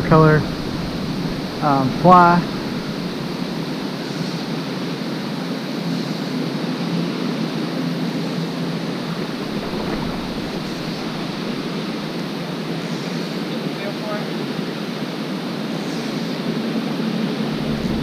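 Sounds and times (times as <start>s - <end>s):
creek water over rocks: 0.0s - 3.9s, 9.2s - 12.4s.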